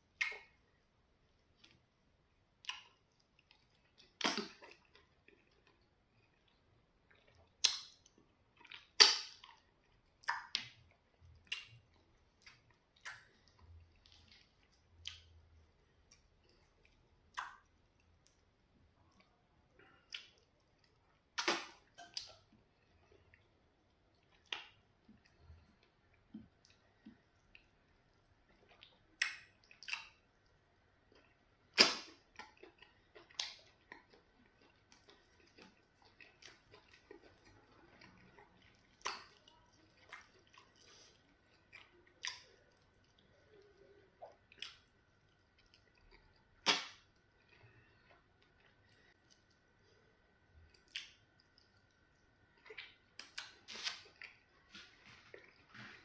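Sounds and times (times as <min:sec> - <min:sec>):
chewing food: 0:00.0 - 0:56.0
wet lip smacks: 0:46.6 - 0:47.0.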